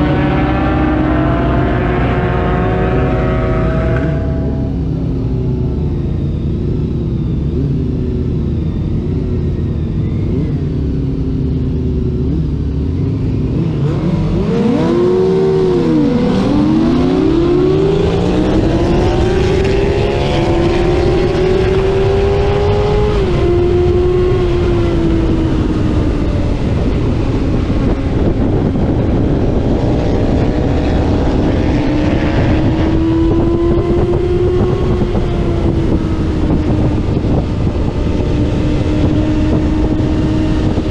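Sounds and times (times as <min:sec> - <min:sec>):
racing motorcycle engine: 0:00.0 - 0:40.9
wind rushing: 0:15.6 - 0:40.9.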